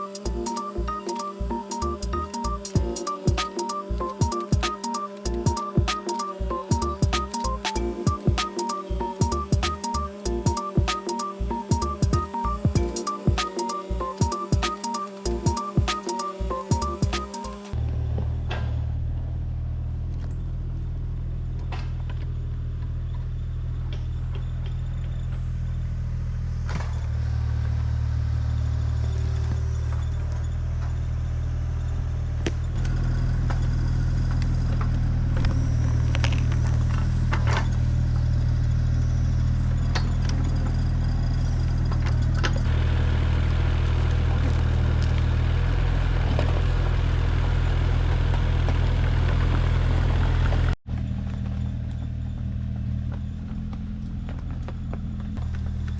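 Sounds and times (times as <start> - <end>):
excavator diesel engine running: 0.0 - 21.5.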